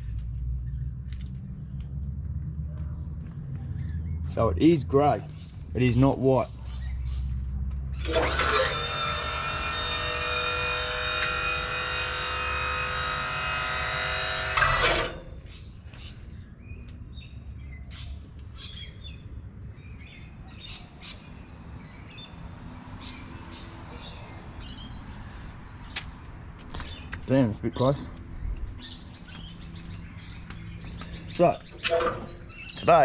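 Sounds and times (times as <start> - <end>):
birds chirping: 2.8 - 33.0
loud machine drone: 8.0 - 15.6.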